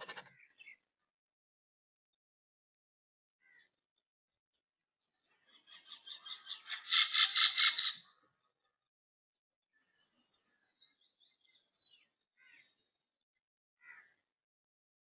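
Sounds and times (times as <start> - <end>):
bird chattering: 0.0 - 0.7.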